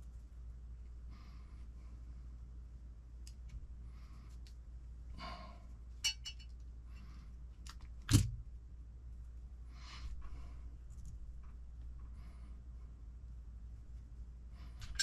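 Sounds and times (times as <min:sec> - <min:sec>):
low steady hum: 0:00.0 - 0:15.0
small parts clicking and rustling: 0:06.0 - 0:06.7, 0:14.8 - 0:15.0.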